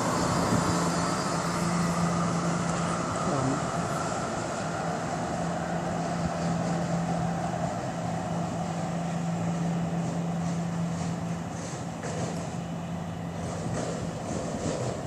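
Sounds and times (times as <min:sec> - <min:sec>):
light rail car humming: 0:00.0 - 0:15.0.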